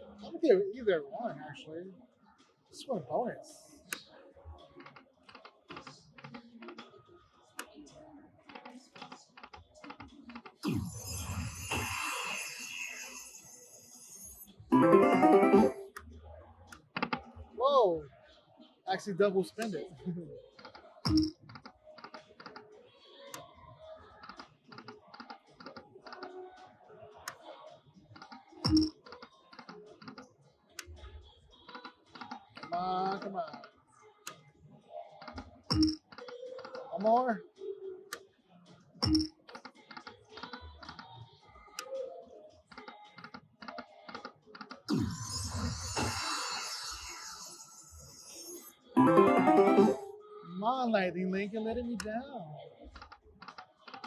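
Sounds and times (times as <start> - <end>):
slot machine reels clicking: 10.7 - 15.9, 47.1 - 50.1.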